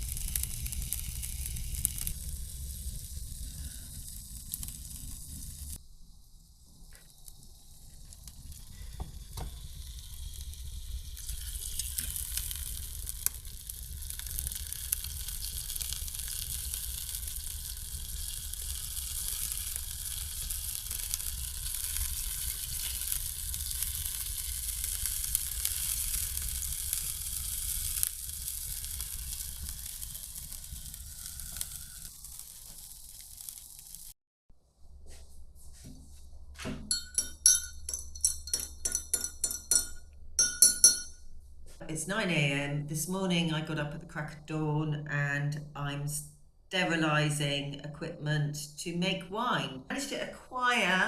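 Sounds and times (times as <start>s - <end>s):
food sizzling in a pan: 0.0s - 6.0s, 7.0s - 34.2s.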